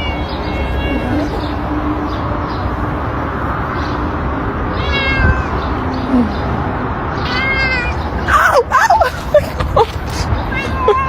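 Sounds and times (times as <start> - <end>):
cat meowing: 0.0 - 1.6, 4.7 - 5.8, 7.2 - 9.0, 10.5 - 11.0
steady background noise: 0.0 - 11.0.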